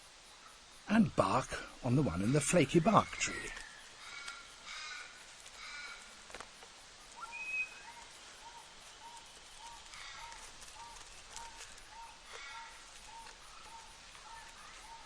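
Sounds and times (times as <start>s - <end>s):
small birds chirping: 0.0s - 15.0s
high bird whistle: 7.2s - 8.0s.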